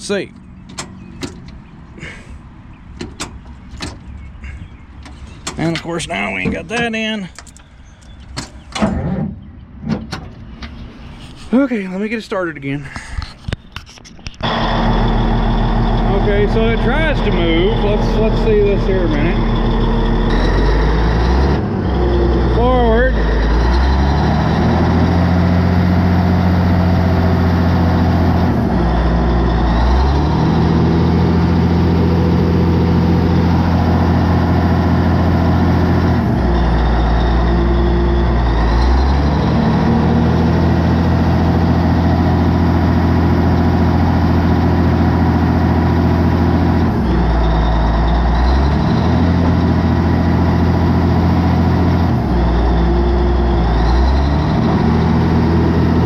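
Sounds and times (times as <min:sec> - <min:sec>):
bulldozer diesel engine: 0:00.0 - 0:12.6, 0:14.3 - 0:56.0.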